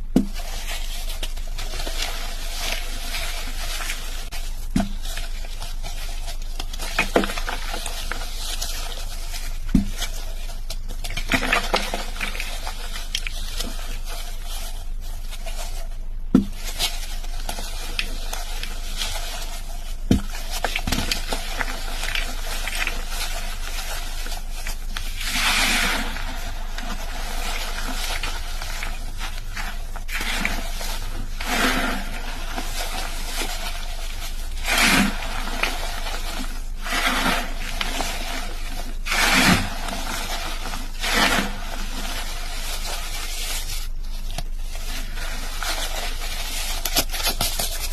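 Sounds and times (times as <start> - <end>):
chalk being crushed and crumbled: 0.0 - 47.9.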